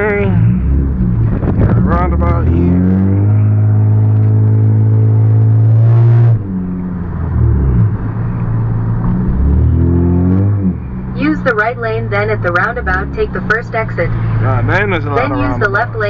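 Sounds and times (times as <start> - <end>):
car engine from inside cabin: 0.0 - 16.0.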